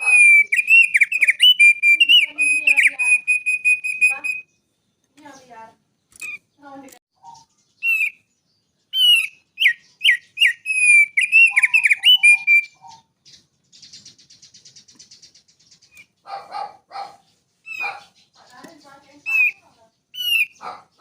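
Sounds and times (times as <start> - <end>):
songbird singing: 0.0 - 21.0.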